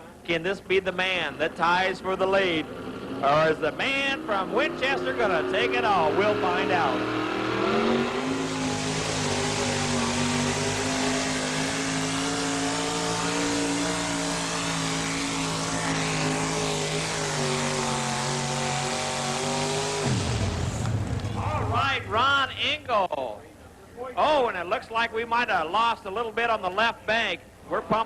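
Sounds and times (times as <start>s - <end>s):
truck engine at full throttle: 2.4s - 22.1s.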